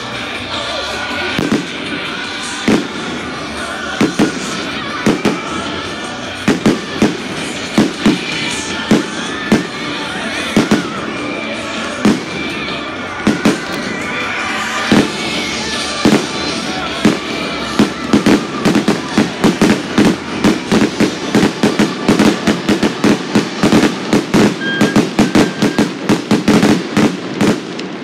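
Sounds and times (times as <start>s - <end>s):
music playing: 0.0s - 28.0s.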